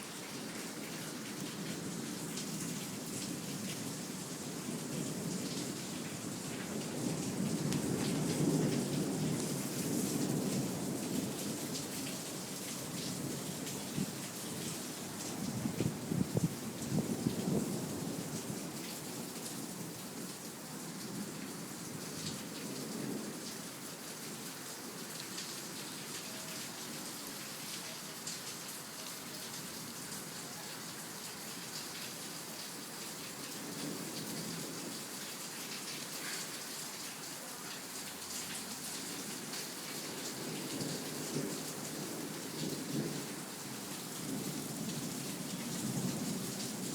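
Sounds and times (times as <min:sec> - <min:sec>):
heavy rain pouring: 0:00.0 - 0:46.9
low rolls of thunder: 0:06.4 - 0:11.9.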